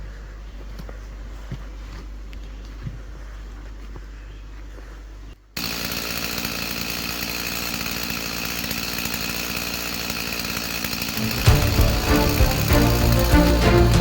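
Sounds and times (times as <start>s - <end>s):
chainsaw engine running: 5.6s - 14.0s
music: 11.2s - 14.0s.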